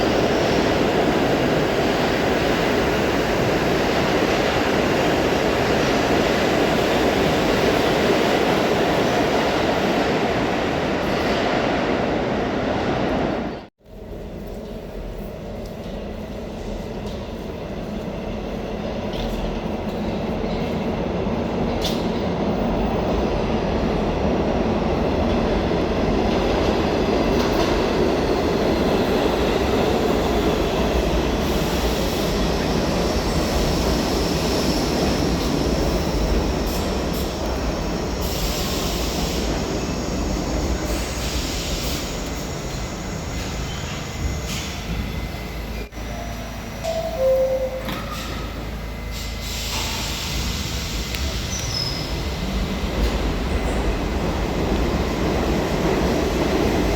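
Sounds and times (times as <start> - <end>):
subway train rumble: 0.0 - 56.9
wheel and brake squeal: 49.1 - 52.3.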